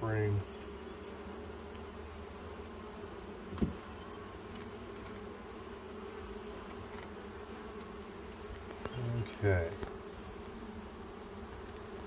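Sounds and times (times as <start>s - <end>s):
honeybees buzzing: 0.0s - 12.0s
brief knock: 3.5s - 3.8s.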